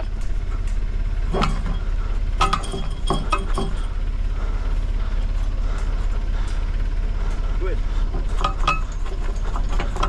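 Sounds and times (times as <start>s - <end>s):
low engine hum: 0.0s - 10.0s
wrench clinking on steel frame: 1.3s - 4.0s, 8.3s - 10.0s.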